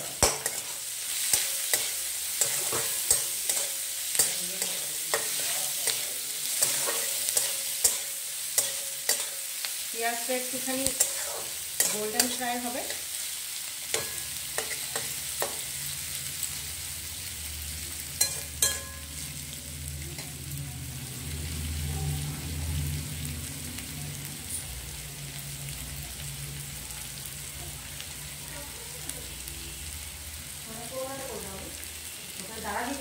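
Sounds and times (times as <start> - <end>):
metal spatula scraping pan: 0.0 - 9.6, 10.5 - 13.2, 13.9 - 15.8
onions sizzling in hot oil: 0.0 - 33.0.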